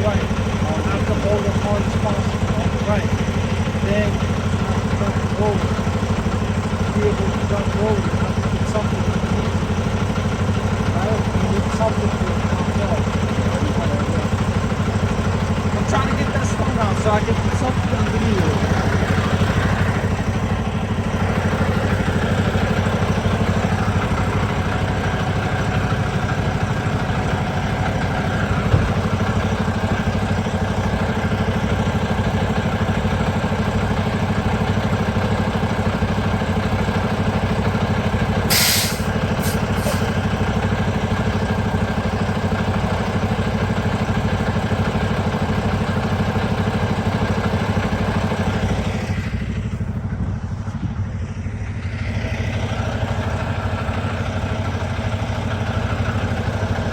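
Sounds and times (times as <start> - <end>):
vehicle engine idling: 0.0 - 56.9
short sharp hiss: 38.5 - 40.1.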